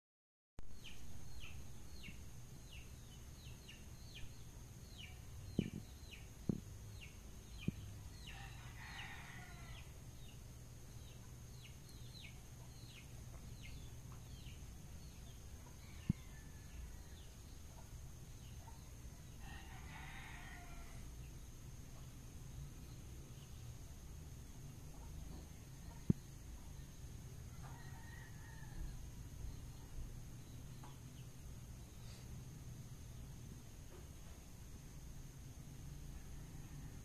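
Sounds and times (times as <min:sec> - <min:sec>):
birds chirping: 0:00.8 - 0:21.0.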